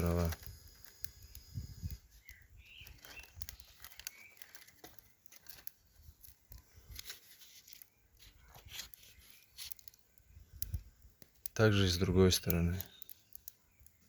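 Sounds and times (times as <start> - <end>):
wood and bark knocking and rustling: 2.2 - 10.0.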